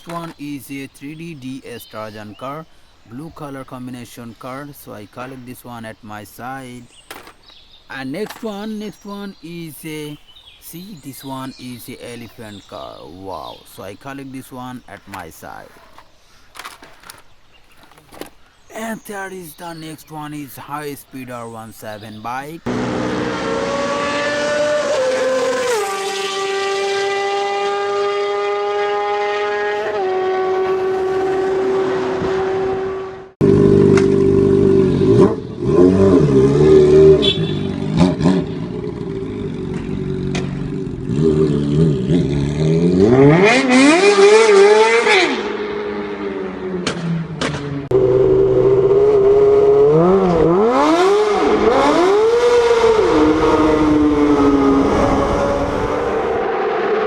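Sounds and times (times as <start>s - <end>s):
motorcycle engine revving: 22.7s - 57.0s.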